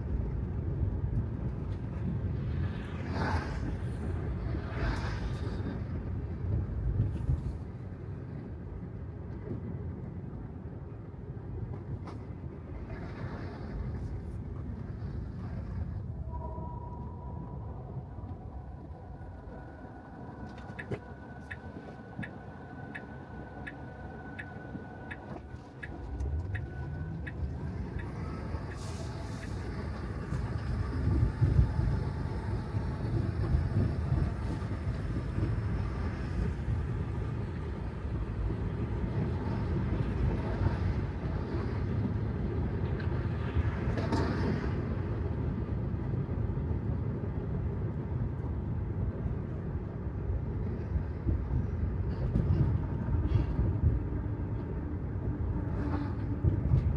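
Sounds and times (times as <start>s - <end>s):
tyres rolling on wet road: 18.7s - 47.3s.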